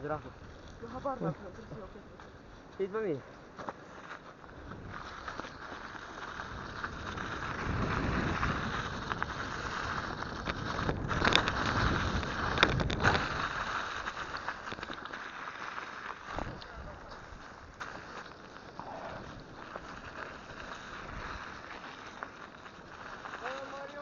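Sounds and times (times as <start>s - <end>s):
bike tyres rumbling on trail: 0.0s - 24.0s
wind buffeting microphone: 4.5s - 14.8s, 16.3s - 17.8s.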